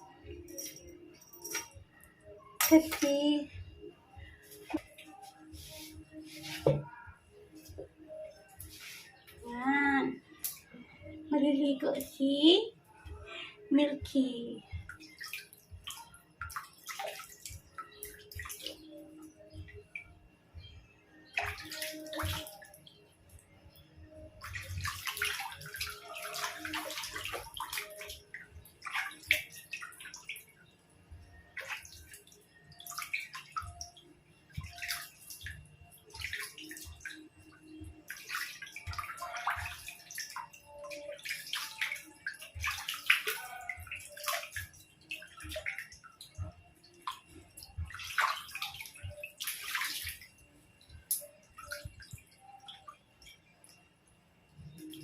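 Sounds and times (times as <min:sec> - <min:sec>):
water splashing and pouring: 0:21.4 - 0:22.7, 0:24.4 - 0:30.5, 0:31.5 - 0:50.4.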